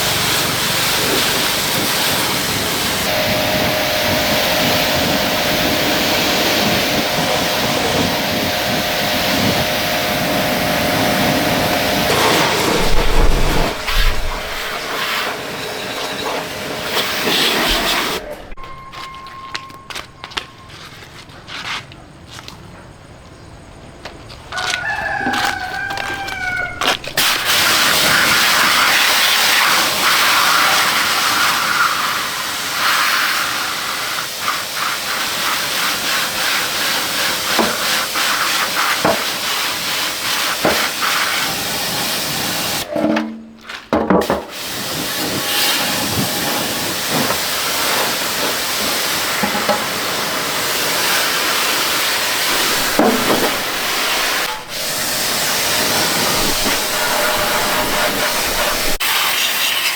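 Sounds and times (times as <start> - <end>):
high-pressure water jet spraying: 0.0 - 18.6, 24.8 - 42.9, 44.2 - 59.9
rooster crowing: 24.5 - 27.4, 52.5 - 59.0.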